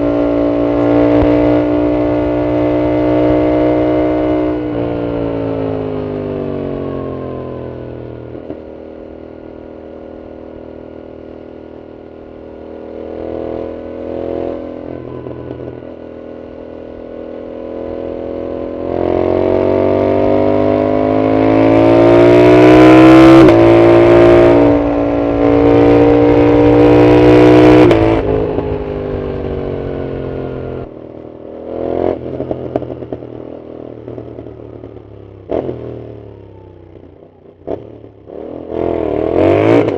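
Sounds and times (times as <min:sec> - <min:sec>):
motorcycle engine accelerating: 0:00.0 - 0:39.9
exhaust crackles and pops: 0:01.1 - 0:01.7, 0:08.3 - 0:08.7.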